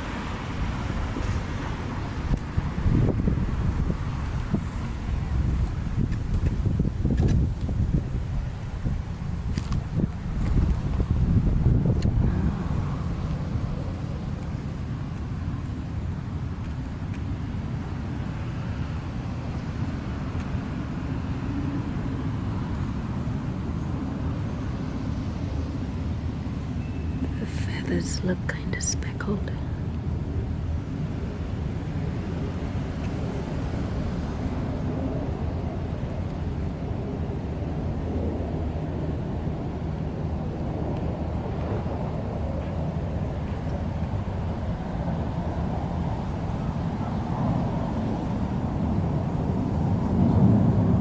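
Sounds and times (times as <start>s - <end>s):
low outdoor rumble: 0.0s - 51.0s.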